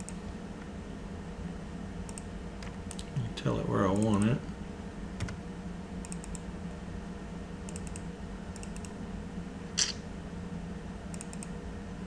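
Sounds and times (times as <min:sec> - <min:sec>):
low hum: 0:00.0 - 0:12.0
keyboard typing: 0:06.1 - 0:06.4.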